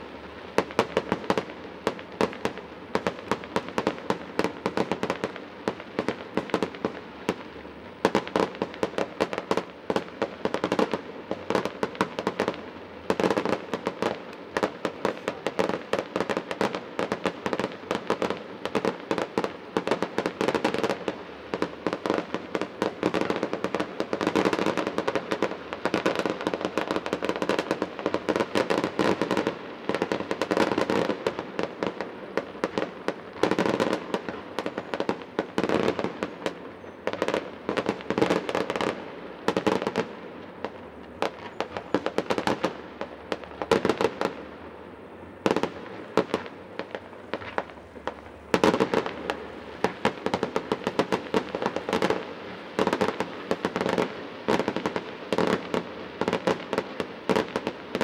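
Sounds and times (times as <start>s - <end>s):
fireworks bangs and pops: 0.0s - 44.7s, 45.4s - 58.0s.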